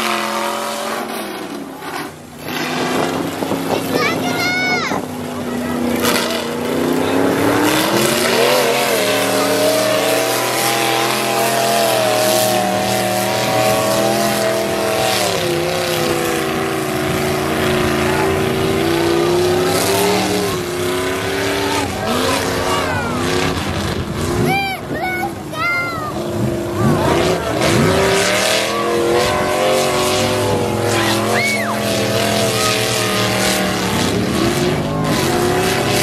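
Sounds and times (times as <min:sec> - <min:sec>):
truck engine running at high revs: 0:00.0 - 0:36.0.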